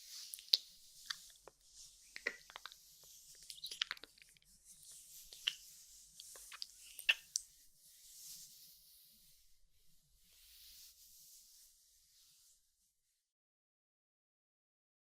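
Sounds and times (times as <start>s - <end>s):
wet mouth clicks and lip smacks: 0.3s - 1.5s, 2.1s - 4.4s, 5.3s - 5.6s, 6.2s - 7.5s.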